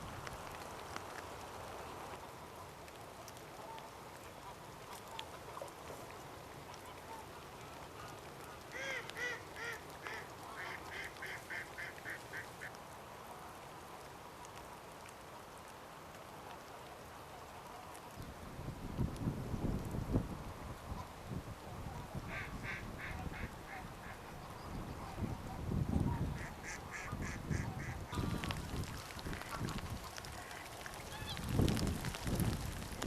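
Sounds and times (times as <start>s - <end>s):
background hiss: 0.0s - 33.0s
ducks calling: 6.6s - 12.8s, 22.3s - 25.3s, 26.3s - 28.6s.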